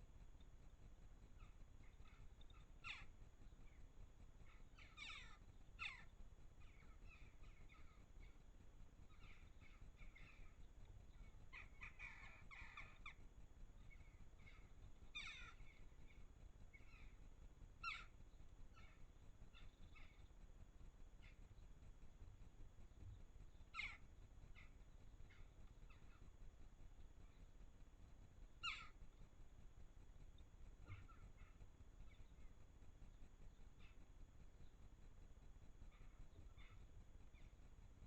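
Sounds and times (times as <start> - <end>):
birds chirping: 0.0 - 38.0
harsh bird calls: 1.4 - 3.1, 4.4 - 8.4, 9.1 - 13.2, 13.8 - 17.2, 17.8 - 18.2, 23.6 - 26.3, 28.6 - 29.0.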